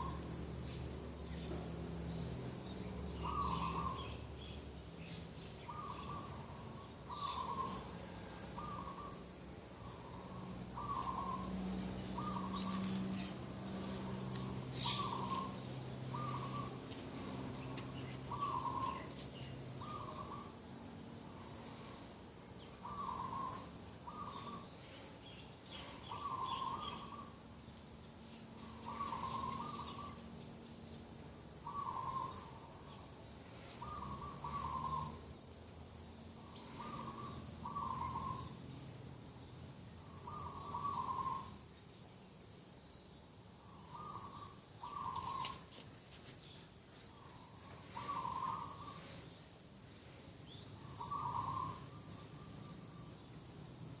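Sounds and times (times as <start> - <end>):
small birds chirping: 0.0 - 20.6, 21.2 - 54.0
low steady hum: 0.0 - 54.0
dove cooing: 3.2 - 4.1, 5.7 - 9.2, 9.8 - 19.2, 22.8 - 24.7, 25.8 - 27.3, 28.6 - 30.2, 31.6 - 32.7, 33.8 - 35.2, 36.6 - 38.5, 40.1 - 41.5, 43.7 - 45.7, 47.2 - 49.2, 50.8 - 52.0.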